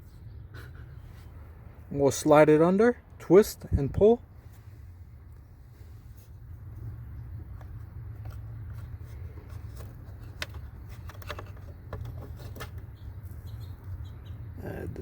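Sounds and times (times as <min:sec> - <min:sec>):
filter scraping and rustling: 0:07.5 - 0:13.0.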